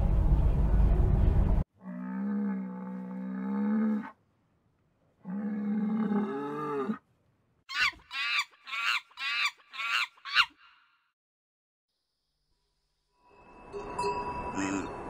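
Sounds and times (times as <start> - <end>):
cow mooing: 1.8 - 4.2, 5.2 - 7.0.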